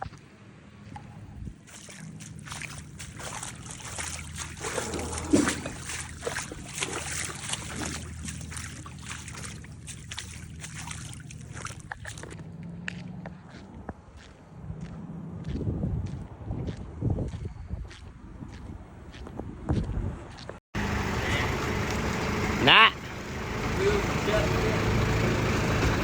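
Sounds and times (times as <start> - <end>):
low hum: 0.0 - 17.0
floodwater rushing and splashing: 0.7 - 13.0, 20.8 - 26.0.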